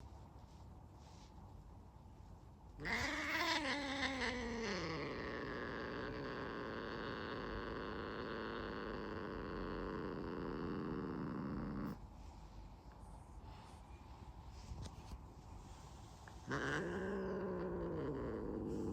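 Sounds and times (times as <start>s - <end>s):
cat yowling: 2.8s - 9.4s, 16.5s - 18.9s
cat growling: 2.8s - 12.0s, 16.3s - 18.9s.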